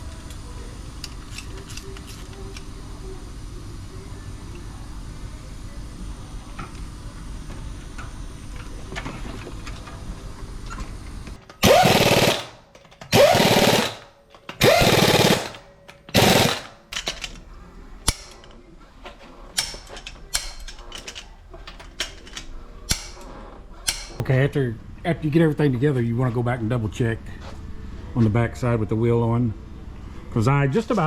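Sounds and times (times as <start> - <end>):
tool clicks and knocks: 11.4 - 17.4, 19.1 - 24.2
impact wrench hammering: 11.6 - 17.3, 22.9 - 23.2.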